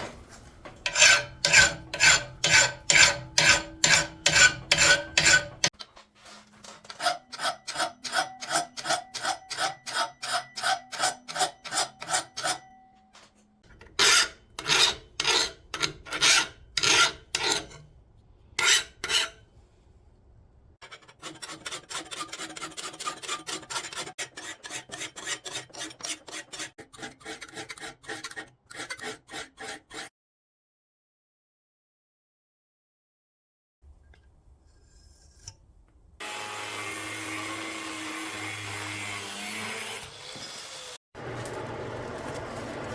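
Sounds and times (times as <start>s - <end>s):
hand file on steel: 0.8s - 5.8s, 6.8s - 12.8s, 13.7s - 17.9s, 18.6s - 19.5s, 20.8s - 30.1s.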